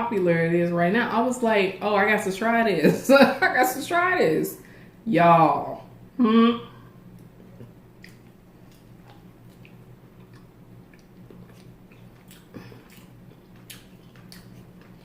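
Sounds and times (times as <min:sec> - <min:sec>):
low hum: 0:00.0 - 0:15.0
chewing crispy food: 0:07.1 - 0:15.0.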